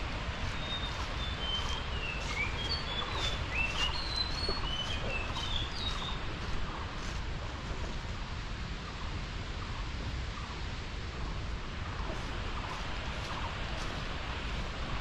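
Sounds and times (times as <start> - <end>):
birds chirping: 0.0 - 8.0, 11.8 - 15.0.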